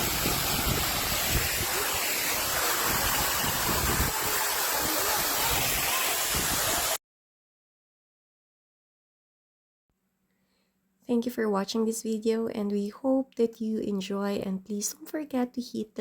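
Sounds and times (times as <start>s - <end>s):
wind buffeting microphone: 0.0s - 6.9s
waterfall rushing: 0.0s - 7.0s.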